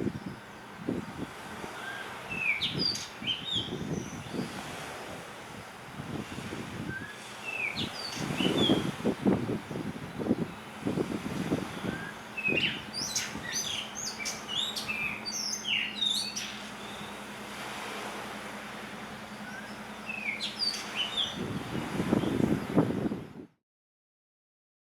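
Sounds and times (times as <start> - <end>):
bird singing high whistled notes: 1.8 - 4.4, 6.9 - 8.9, 11.6 - 17.2, 19.3 - 21.6.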